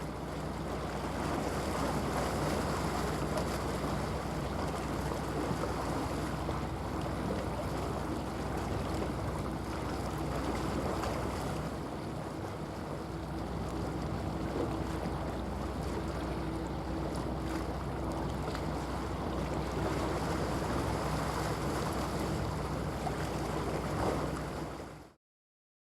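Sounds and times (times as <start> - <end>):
waves washing: 0.0 - 25.1
ship diesel engine drone: 0.0 - 25.2.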